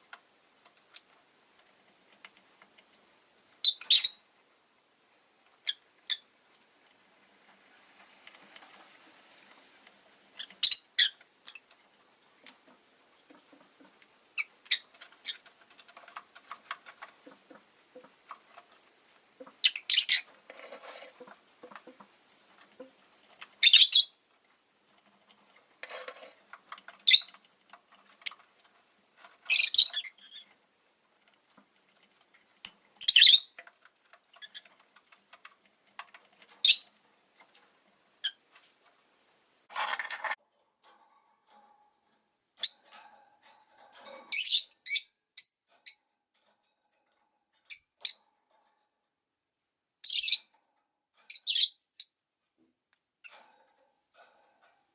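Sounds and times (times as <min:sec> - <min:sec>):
faint clicks and rustles: 0:00.0 - 0:44.9, 0:45.6 - 0:49.6, 0:52.4 - 0:54.9
lovebirds chirping: 0:03.6 - 0:04.3, 0:10.4 - 0:11.7, 0:14.3 - 0:15.5, 0:19.4 - 0:20.3, 0:23.6 - 0:24.2, 0:27.0 - 0:27.4, 0:29.5 - 0:30.5, 0:33.0 - 0:33.6, 0:36.6 - 0:37.0, 0:42.6 - 0:42.8, 0:44.3 - 0:46.1, 0:47.7 - 0:48.2, 0:50.0 - 0:50.5, 0:51.3 - 0:52.2.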